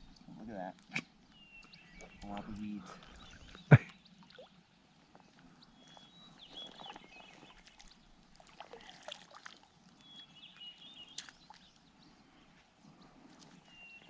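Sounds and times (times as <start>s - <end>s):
small water splashes: 0.1s - 4.8s, 5.8s - 11.9s.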